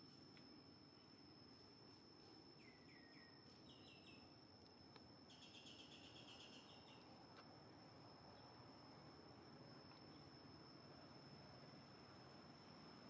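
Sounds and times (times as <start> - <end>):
faint bird chirps: 2.2 - 4.3, 5.3 - 7.2.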